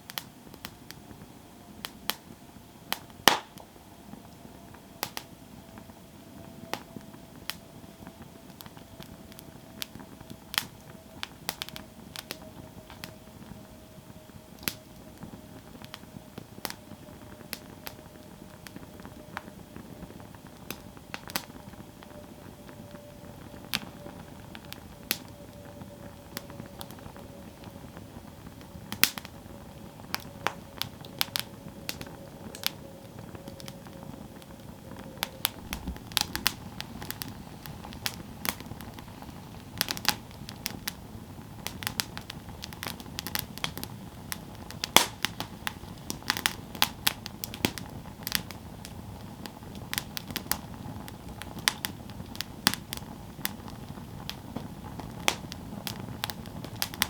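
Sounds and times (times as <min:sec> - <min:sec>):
wood crackling and popping: 0:00.0 - 0:57.0
rush of flame: 0:25.9 - 0:57.0.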